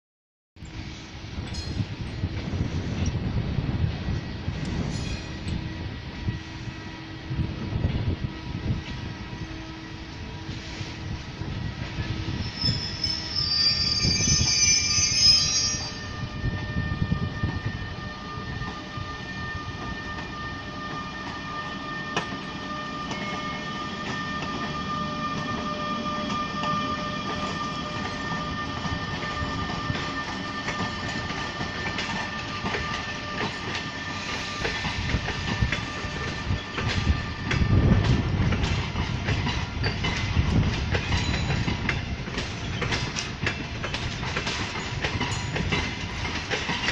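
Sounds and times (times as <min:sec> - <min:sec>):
train whine: 0:00.6 - 0:46.9
train brake squeal: 0:09.4 - 0:38.8, 0:39.5 - 0:46.9
wheels clicking over rail joints: 0:34.6 - 0:46.9.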